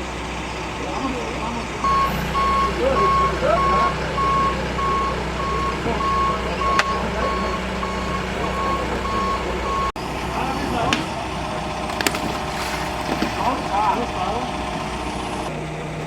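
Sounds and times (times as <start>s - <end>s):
diesel engine running: 0.0s - 16.0s
reversing alarm beeping: 1.8s - 10.8s.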